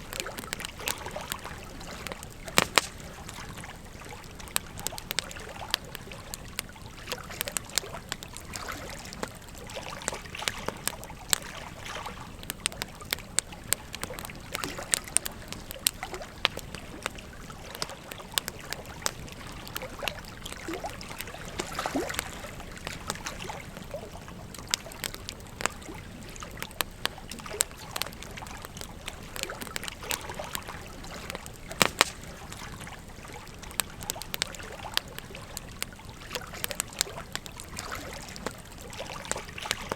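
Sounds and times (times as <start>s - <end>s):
wood fire crackling: 0.0s - 39.9s
river water flowing: 13.8s - 39.9s.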